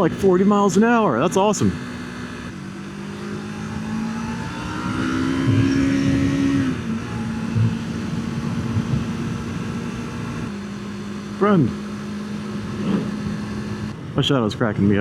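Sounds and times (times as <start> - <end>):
motorcycle engine revving: 0.0 - 14.2
wind noise on microphone: 5.5 - 6.8, 7.5 - 9.8.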